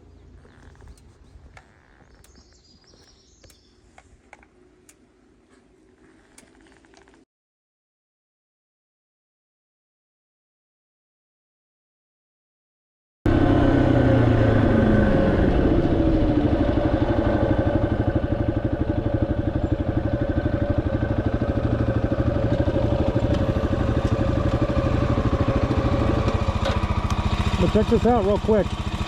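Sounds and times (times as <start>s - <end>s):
motorcycle engine running: 0.0s - 3.7s, 13.3s - 29.0s.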